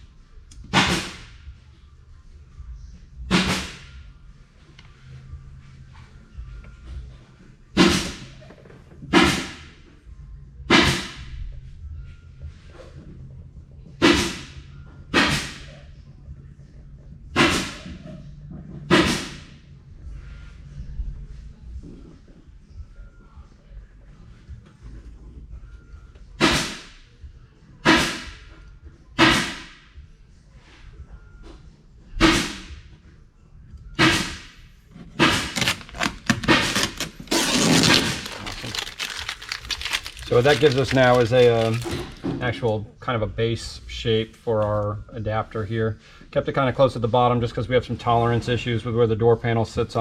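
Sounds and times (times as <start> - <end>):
adhesive tape torn off roll: 35.2 - 42.2.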